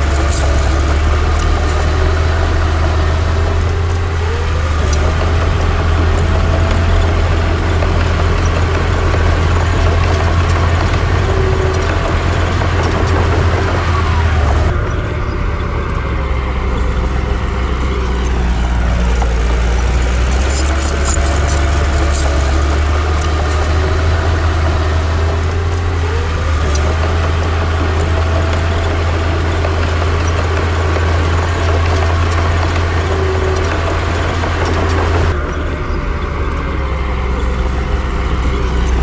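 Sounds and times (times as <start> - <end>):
heavy diesel machinery engine hum: 0.0 - 39.0.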